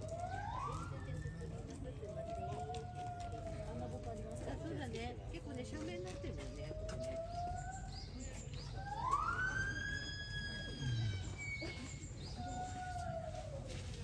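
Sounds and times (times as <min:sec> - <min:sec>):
siren wailing: 0:09.0 - 0:11.0.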